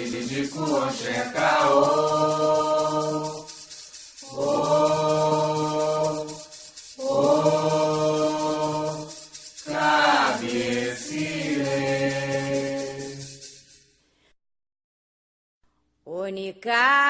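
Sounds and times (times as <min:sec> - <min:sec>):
voices chanting long notes: 0:00.0 - 0:13.6.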